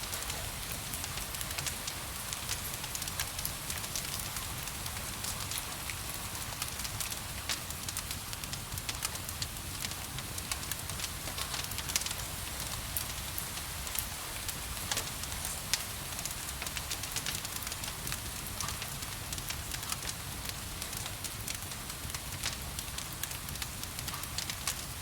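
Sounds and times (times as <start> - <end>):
gentle rain hissing: 0.0 - 25.0
wood fire crackling and popping: 0.0 - 25.0.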